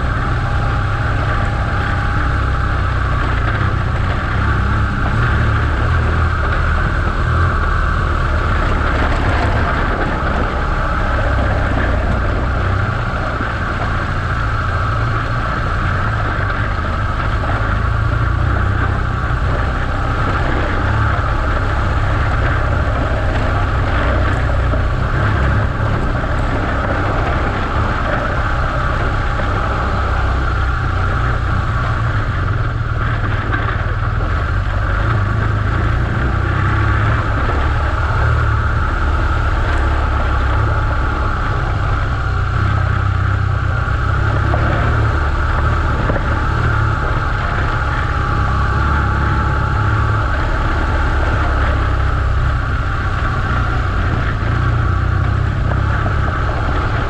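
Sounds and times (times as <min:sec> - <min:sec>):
motorcycle engine rumbling: 0:00.0 - 0:57.0
wind and road noise: 0:00.0 - 0:57.0.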